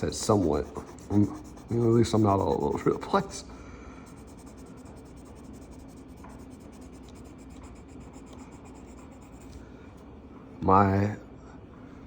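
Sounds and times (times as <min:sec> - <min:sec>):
marker rubbing on paper: 0:00.0 - 0:03.4, 0:04.0 - 0:09.6.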